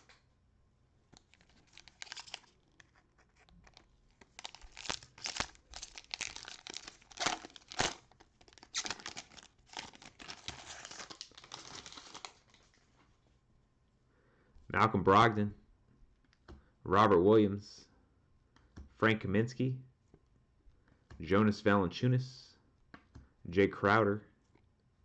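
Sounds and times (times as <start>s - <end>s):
cellophane wrapper crinkling: 1.2s - 12.8s.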